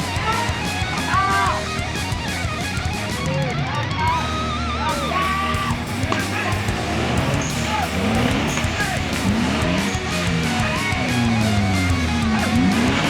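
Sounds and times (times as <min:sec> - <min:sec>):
electric guitar with bent notes: 0:00.0 - 0:13.0
steady beat: 0:05.0 - 0:13.0.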